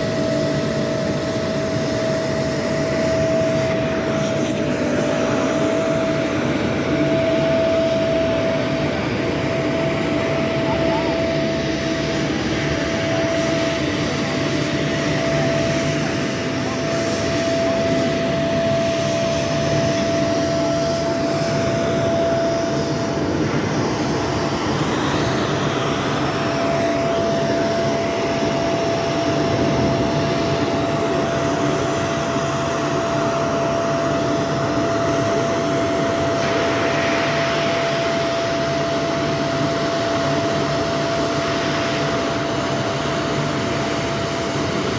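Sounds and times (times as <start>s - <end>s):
industrial machinery rush: 0.0s - 33.2s
mid-pitched machine whine: 0.0s - 44.9s.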